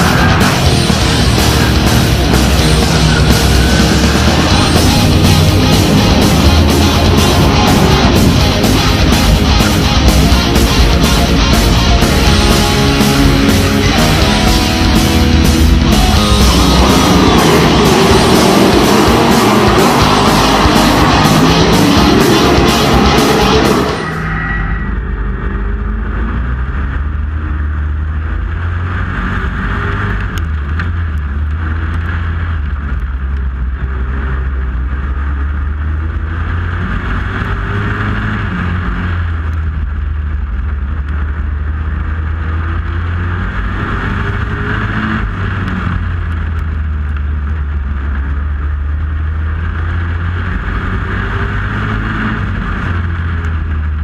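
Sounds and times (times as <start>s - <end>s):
rock music: 0.0s - 25.0s
truck engine running: 0.0s - 54.0s.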